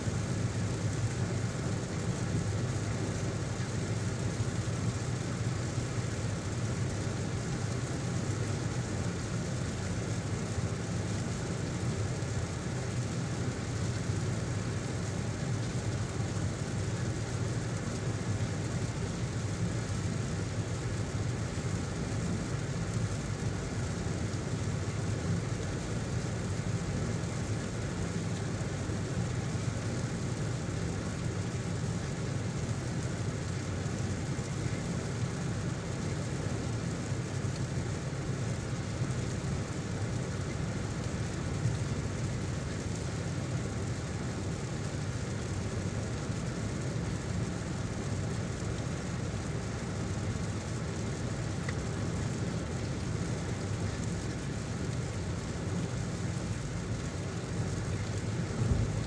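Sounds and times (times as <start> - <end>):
rain hiss: 0.0 - 59.0
car road and engine rumble: 57.4 - 59.0.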